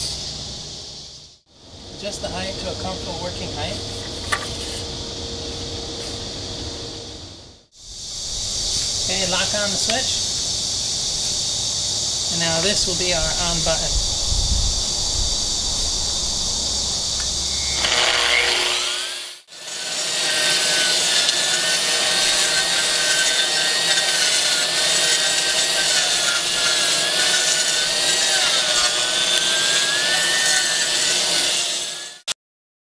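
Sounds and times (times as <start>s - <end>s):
concrete grinder motor whine: 16.9s - 19.4s.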